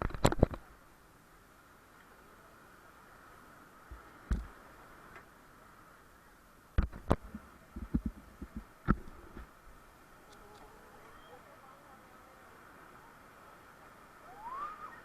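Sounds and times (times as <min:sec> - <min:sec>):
faint steady hiss: 0:00.0 - 0:15.0
low thumps and knocks: 0:06.8 - 0:09.0.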